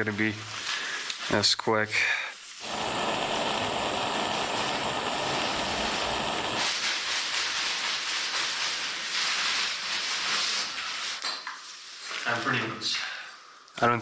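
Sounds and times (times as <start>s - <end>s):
steady rushing hiss: 0.0s - 11.2s.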